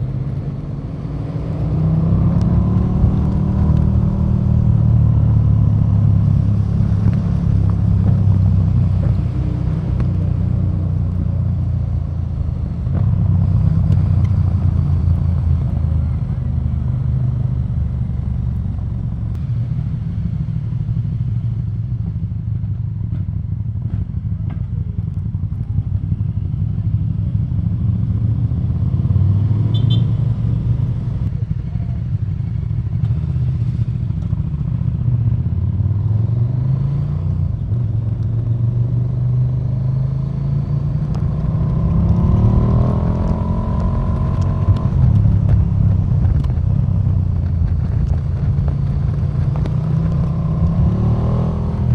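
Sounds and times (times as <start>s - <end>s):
motorcycle engine revving: 0.0s - 16.6s, 26.2s - 32.0s, 33.1s - 51.9s.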